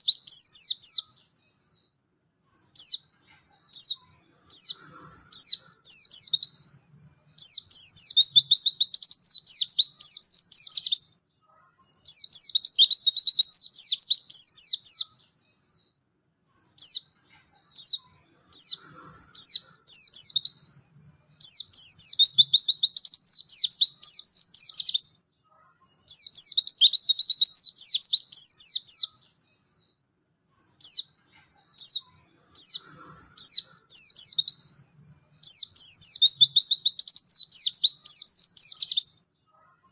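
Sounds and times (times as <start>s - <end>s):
bird twittering: 0.0s - 39.9s.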